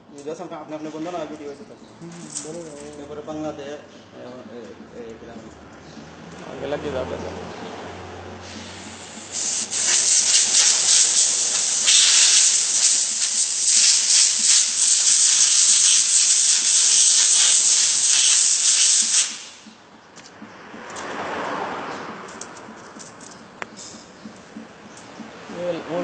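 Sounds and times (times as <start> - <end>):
compressed air blow gun hissing: 8.4 - 19.8.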